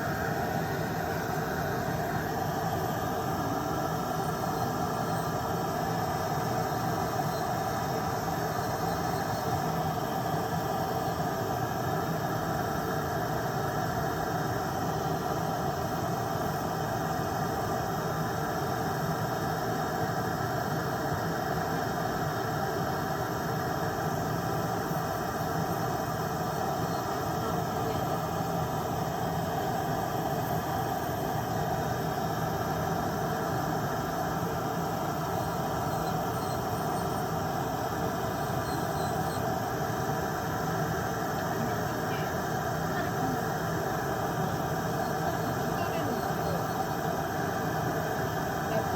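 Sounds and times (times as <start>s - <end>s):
electric nail drill whining: 24.9s - 48.8s.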